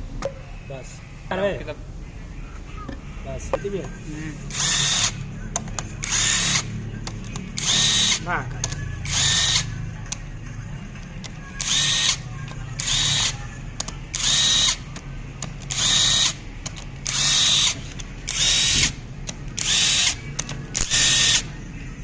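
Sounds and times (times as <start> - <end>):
steady low hum: 0.0 - 22.0
power tool bursts: 4.5 - 5.2, 11.6 - 12.2, 15.7 - 16.4, 17.0 - 19.0, 19.6 - 20.2, 20.8 - 21.5.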